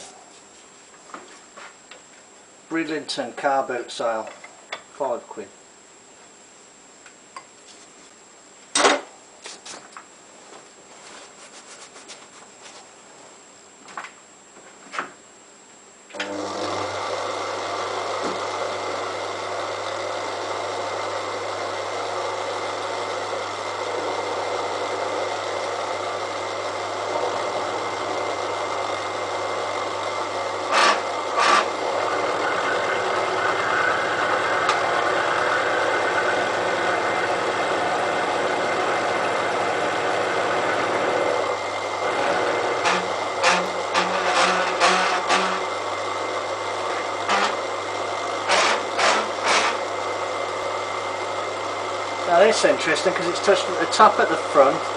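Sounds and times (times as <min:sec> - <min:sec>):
milling machine running: 0:16.1 - 0:54.9.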